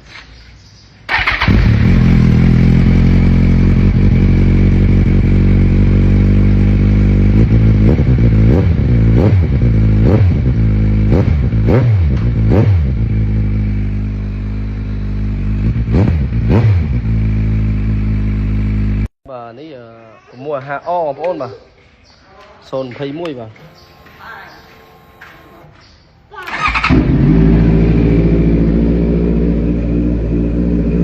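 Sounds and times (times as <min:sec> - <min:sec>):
motorcycle engine revving: 0:01.1 - 0:19.1, 0:26.4 - 0:31.0.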